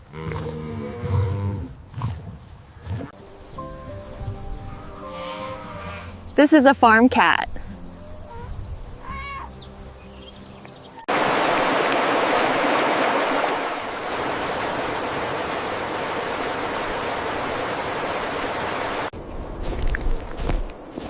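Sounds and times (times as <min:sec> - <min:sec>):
steady rushing noise: 0:11.1 - 0:19.6.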